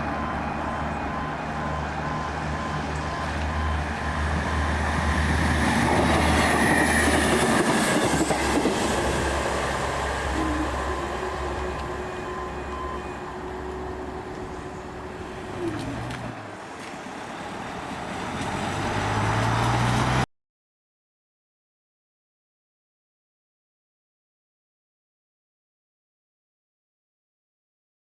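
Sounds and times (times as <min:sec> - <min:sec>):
wheels on rails: 0:00.0 - 0:20.2
diesel train drone: 0:00.0 - 0:20.3.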